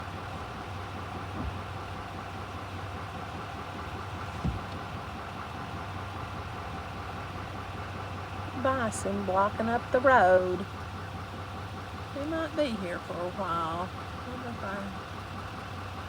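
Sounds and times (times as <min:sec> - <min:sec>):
truck engine idling: 0:00.0 - 0:16.0
low thump: 0:01.3 - 0:01.7, 0:04.3 - 0:04.9.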